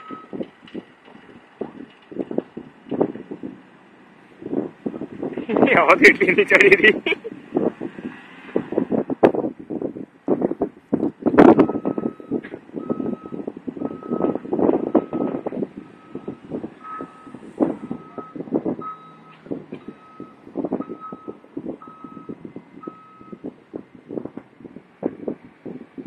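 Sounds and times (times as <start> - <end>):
reversing alarm beeping: 0.0 - 0.4, 11.6 - 15.4, 16.0 - 23.4
wind buffeting microphone: 0.0 - 26.0.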